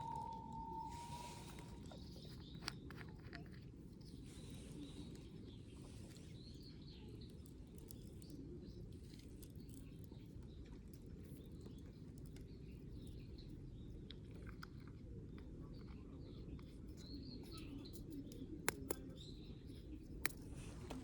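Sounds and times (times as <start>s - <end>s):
low outdoor rumble: 0.0s - 7.8s
small birds chirping: 0.0s - 21.0s.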